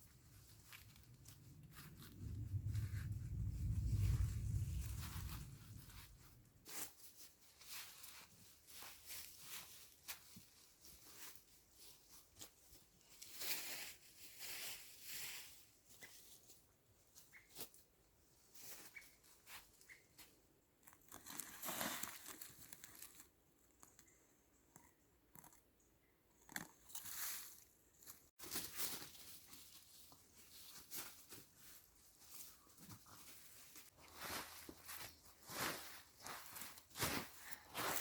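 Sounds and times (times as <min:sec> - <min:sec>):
faint crunching and rustling: 0:00.0 - 0:38.0
slow scuffing footsteps: 0:33.0 - 0:38.0.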